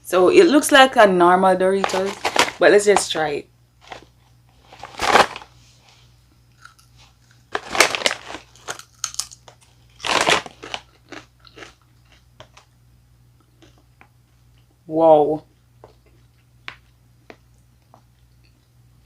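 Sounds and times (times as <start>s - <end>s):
crunching tortilla chips: 3.8s - 5.5s, 6.5s - 12.7s
chewing chips: 6.5s - 12.8s, 13.4s - 14.8s, 15.8s - 18.8s.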